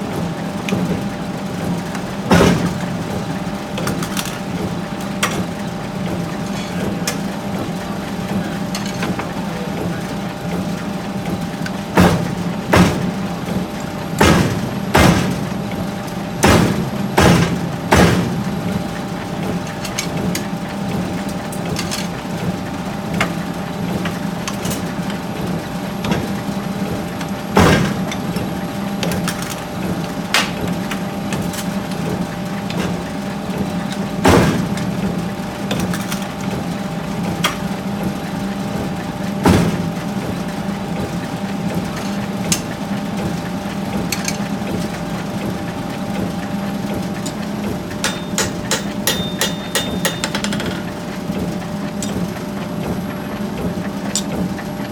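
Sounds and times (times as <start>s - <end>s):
machinery humming: 0.0s - 54.9s.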